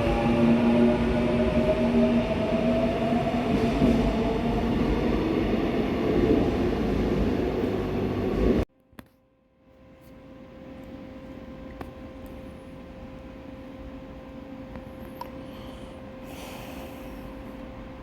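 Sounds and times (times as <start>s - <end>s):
faint steady hum: 8.8s - 18.0s.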